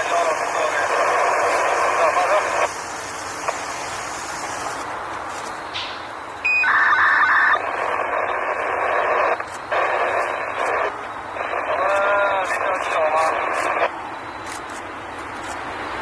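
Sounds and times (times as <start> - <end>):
radio static hiss: 0.0 - 5.7, 6.5 - 15.6
short electronic beeps: 6.4 - 7.6.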